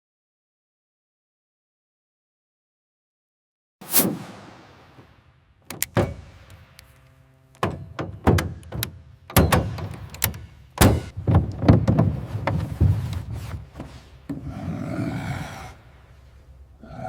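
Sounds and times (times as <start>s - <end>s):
sharp clicks: 5.7s - 7.1s
heavy knocks and thunks: 7.6s - 14.4s.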